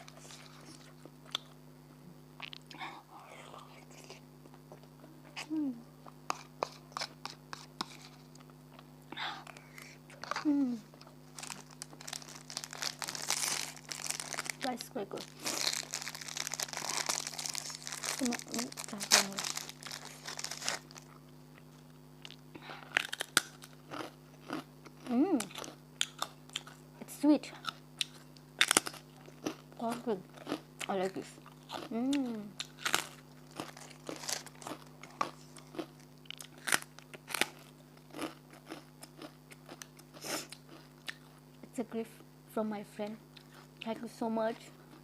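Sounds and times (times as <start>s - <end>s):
faint low hum: 0.0s - 45.0s
rice cracker crunching: 11.0s - 21.6s, 22.2s - 26.8s, 27.6s - 31.9s, 32.6s - 41.3s.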